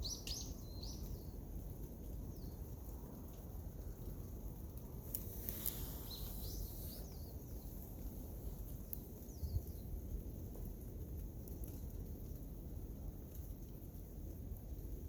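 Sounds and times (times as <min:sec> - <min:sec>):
small birds chirping: 0:00.0 - 0:01.4, 0:05.1 - 0:10.0
low outdoor rumble: 0:01.2 - 0:15.0
faint clicks: 0:05.1 - 0:07.1.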